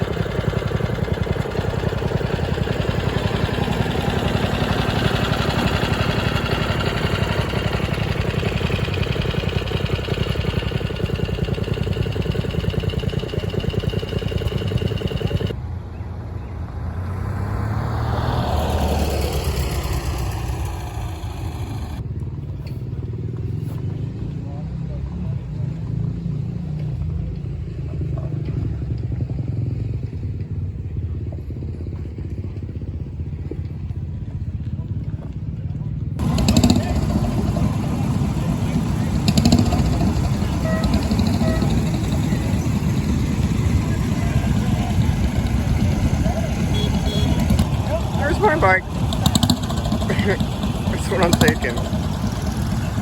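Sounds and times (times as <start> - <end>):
motorbike engine passing by: 0.0 - 22.0, 36.2 - 53.0.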